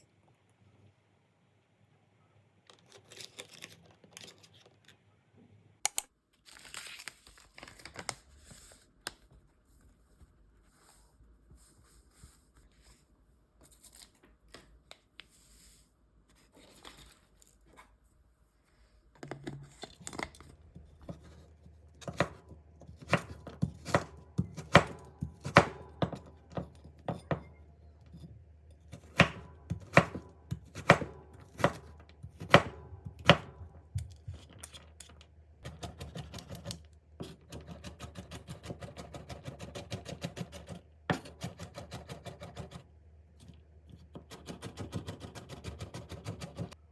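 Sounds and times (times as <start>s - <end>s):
knife chopping on cutting board: 23.0s - 27.5s, 29.0s - 33.6s.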